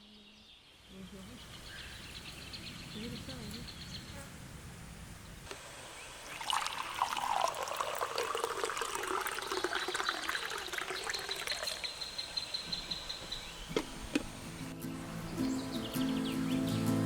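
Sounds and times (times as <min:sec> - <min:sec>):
liquid pouring into container: 0:06.2 - 0:12.2.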